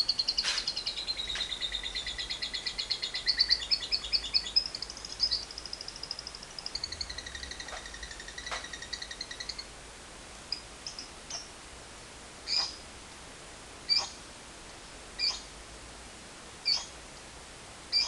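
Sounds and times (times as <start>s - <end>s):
lovebird chattering trill: 0.0s - 9.7s, 12.5s - 12.8s, 13.9s - 14.2s, 15.2s - 15.5s, 16.6s - 17.0s
sharp single bird chirps: 16.7s - 16.9s.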